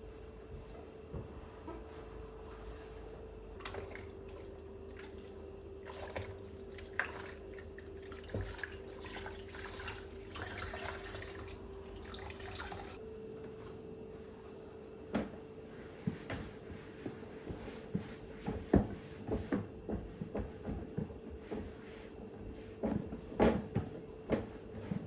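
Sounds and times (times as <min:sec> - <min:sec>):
steady low hum: 0:00.0 - 0:25.0
water running and dripping at a sink: 0:03.6 - 0:13.0.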